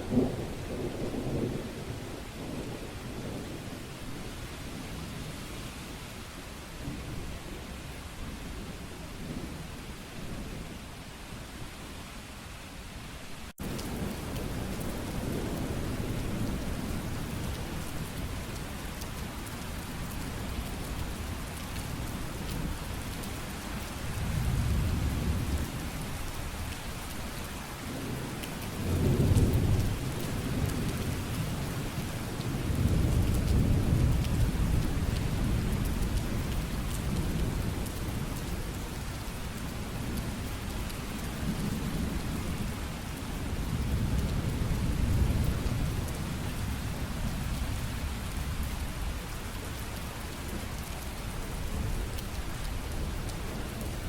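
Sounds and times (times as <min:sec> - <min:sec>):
low rolls of thunder: 0:00.0 - 0:05.0, 0:13.6 - 0:19.1, 0:24.1 - 0:26.4, 0:27.8 - 0:49.3
steady rain: 0:00.0 - 0:54.0.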